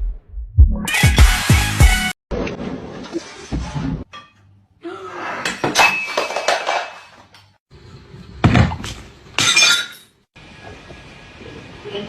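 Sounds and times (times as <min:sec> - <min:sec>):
falling objects crashing: 0:05.6 - 0:07.3
glassy clink: 0:09.4 - 0:10.1.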